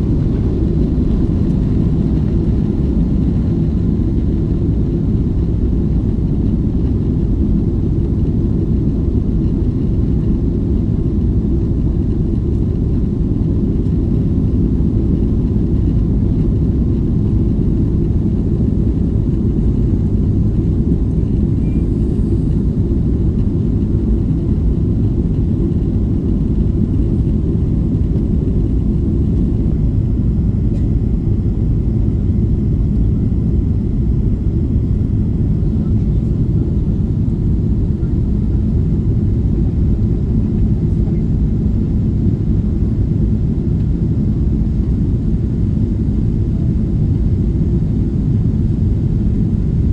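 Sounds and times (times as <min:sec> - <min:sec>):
jet engines and airflow rumbling: 0:00.0 - 0:49.9.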